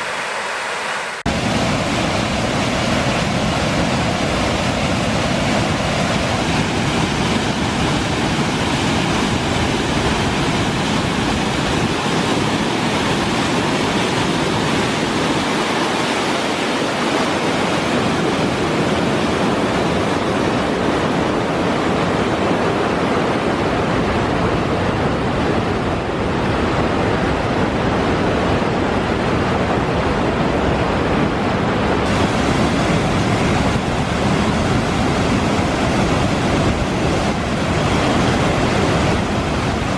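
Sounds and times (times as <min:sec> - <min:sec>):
waterfall rushing: 0:00.0 - 0:19.8, 0:32.0 - 0:39.9.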